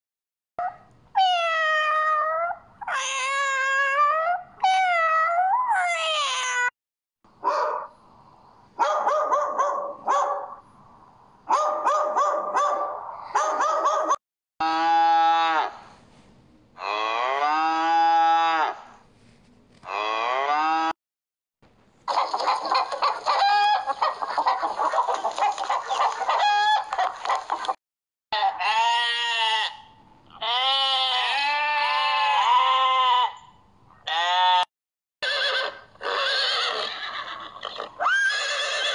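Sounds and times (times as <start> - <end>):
rapid animal calls: 22.1 - 27.8
sheep bleating: 28.6 - 33.4.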